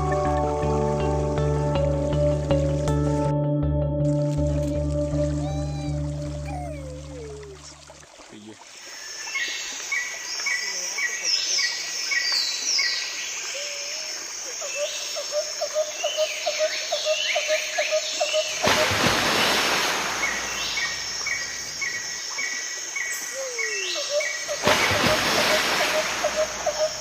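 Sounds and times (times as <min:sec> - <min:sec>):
birds singing and chirping: 0:20.2 - 0:24.7.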